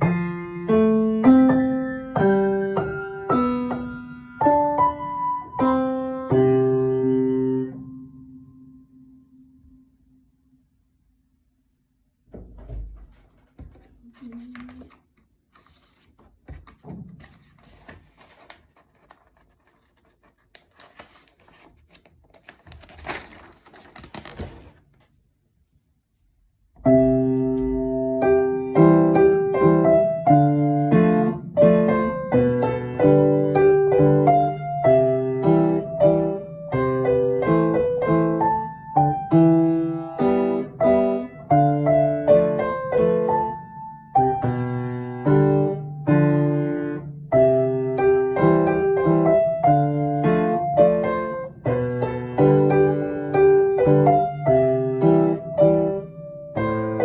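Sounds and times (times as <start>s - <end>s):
lively piano piece: 0.0s - 8.7s, 26.8s - 57.0s
faint rustling and knocks: 12.3s - 25.1s.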